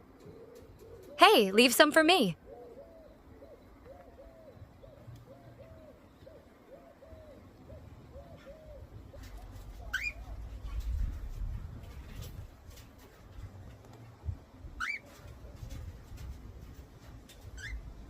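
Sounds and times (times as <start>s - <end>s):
bird hooting coos: 0.0s - 1.2s, 2.4s - 10.4s.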